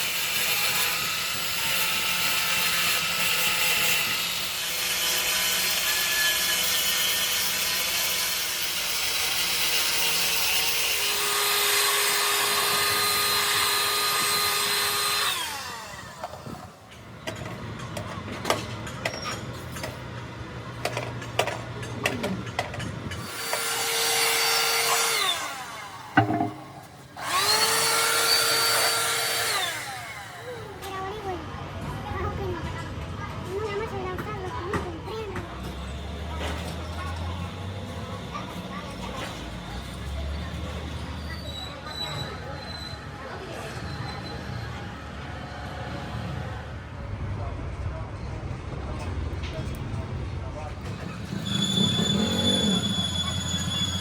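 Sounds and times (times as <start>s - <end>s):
electric power tool running: 8.2s - 16.4s, 23.2s - 30.6s
knocks and clicks of handling: 26.2s - 26.9s.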